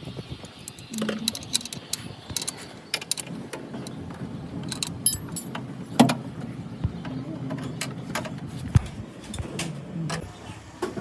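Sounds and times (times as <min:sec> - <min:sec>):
metallic clicks and ticks: 0:00.4 - 0:04.0, 0:04.7 - 0:05.6.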